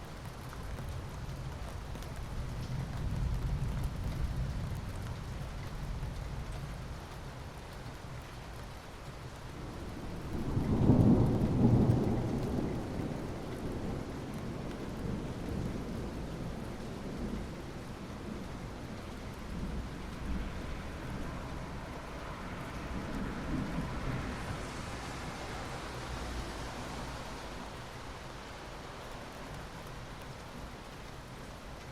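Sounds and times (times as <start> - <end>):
steady rain: 0.0 - 31.9.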